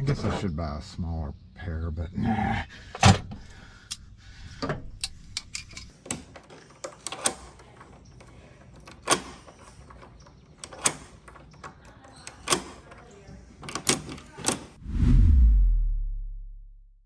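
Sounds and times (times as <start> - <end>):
tools and lock hardware clicking: 4.6 - 14.6.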